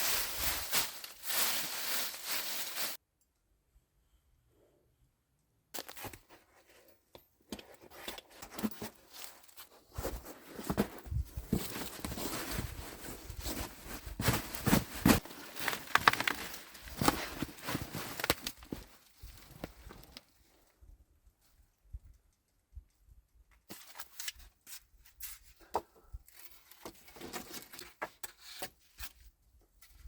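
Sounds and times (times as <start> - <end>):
branches rustling and snapping: 0.0 - 3.0, 8.2 - 20.3.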